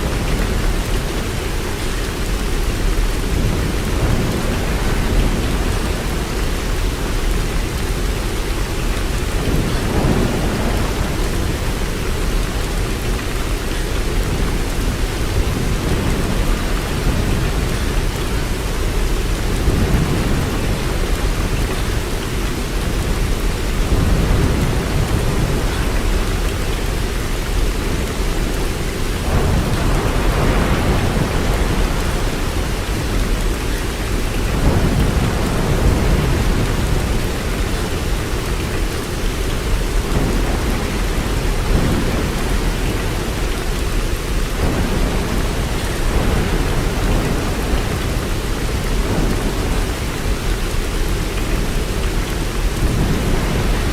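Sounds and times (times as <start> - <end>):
steady rain: 0.0 - 53.9.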